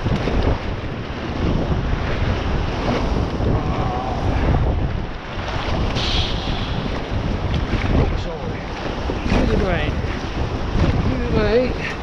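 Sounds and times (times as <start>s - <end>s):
sea water washing and splashing: 0.0s - 12.0s
wind buffeting microphone: 0.0s - 12.0s.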